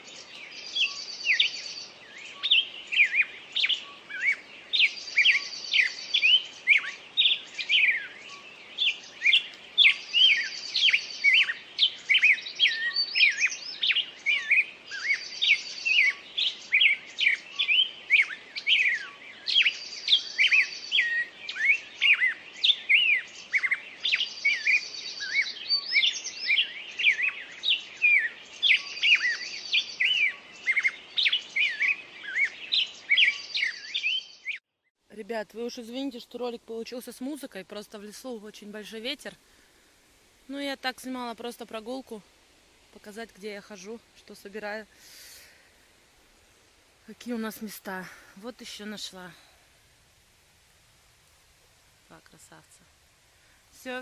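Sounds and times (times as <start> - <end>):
birds chirping and trilling: 0.0 - 34.9.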